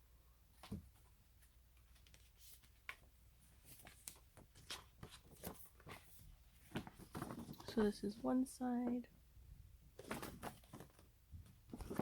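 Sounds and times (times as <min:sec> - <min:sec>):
paper rustling and crinkling: 0:01.8 - 0:08.2, 0:10.0 - 0:11.1, 0:11.7 - 0:12.0.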